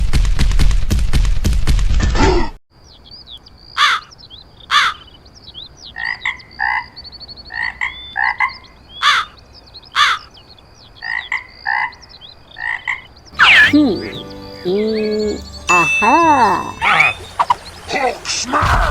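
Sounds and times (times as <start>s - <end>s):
croaking animal calls: 5.9s - 10.4s, 11.0s - 15.1s
thin high chirps: 13.3s - 18.2s.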